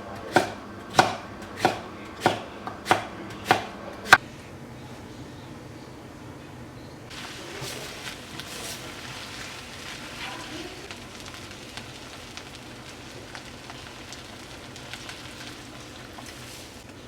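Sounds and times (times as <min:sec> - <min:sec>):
food sizzling in oil: 0:07.1 - 0:17.0.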